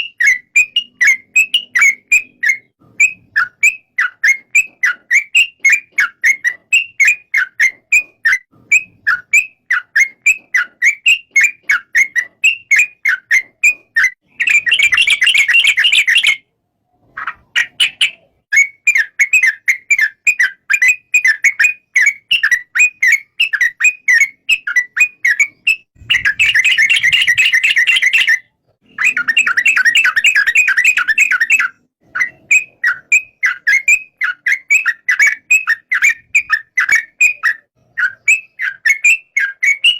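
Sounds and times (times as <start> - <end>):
bird rapid chattering: 0.0 - 16.4, 17.0 - 39.9
bird whistled notes: 0.0 - 16.4, 17.2 - 39.9.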